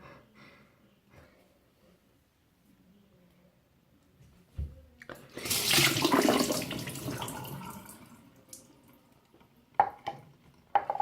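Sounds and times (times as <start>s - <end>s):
water pouring and splashing: 5.3s - 8.1s.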